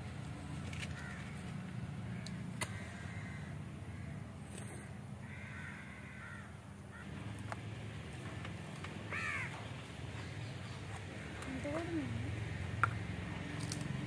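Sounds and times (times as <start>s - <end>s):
steady low hum: 0.0s - 14.0s
crow cawing: 0.8s - 1.4s, 2.1s - 7.2s, 9.1s - 10.5s.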